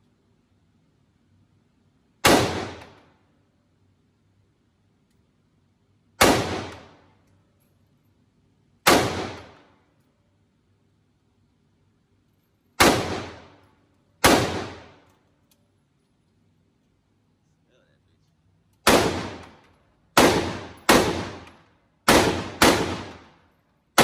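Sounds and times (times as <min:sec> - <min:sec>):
gunshots with echo: 0:06.2 - 0:06.8, 0:08.9 - 0:09.5, 0:12.8 - 0:13.5, 0:14.2 - 0:14.9, 0:18.9 - 0:19.5, 0:20.2 - 0:21.5, 0:22.1 - 0:23.3.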